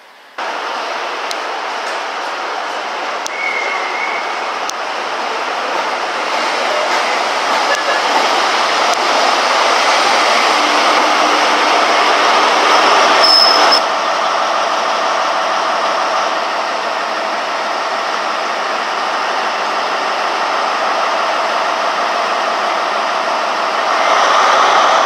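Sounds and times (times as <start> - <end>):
train wheel and engine rumble: 0.0 - 25.0
high brake squeal: 13.2 - 13.8.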